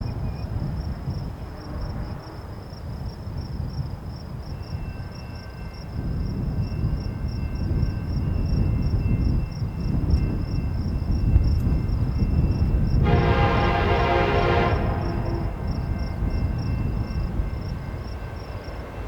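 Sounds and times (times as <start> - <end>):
insect chirping: 0.1 - 13.1, 14.7 - 19.0
low rumble: 11.4 - 17.0.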